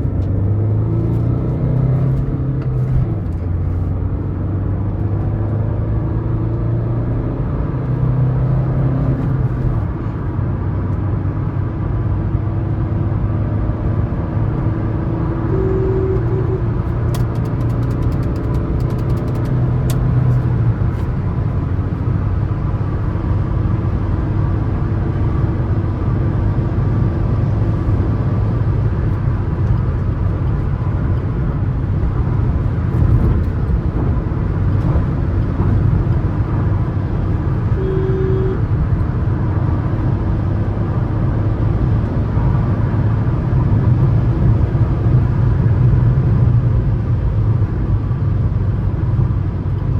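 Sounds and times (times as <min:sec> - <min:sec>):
car engine and tyre drone: 0:00.0 - 0:49.9
sharp clicks: 0:17.1 - 0:20.1.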